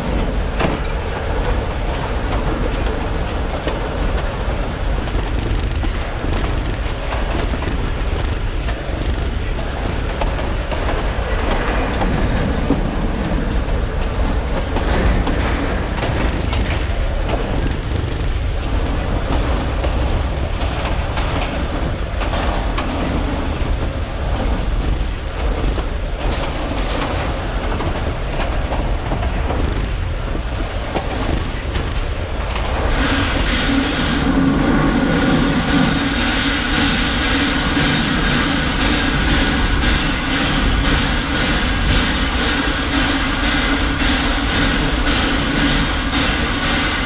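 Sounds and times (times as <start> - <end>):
train wagons rumbling on rails: 0.0 - 47.0
wheels clacking: 0.0 - 47.0
high wheel squeaks: 5.0 - 10.5, 16.0 - 18.5, 29.2 - 30.5.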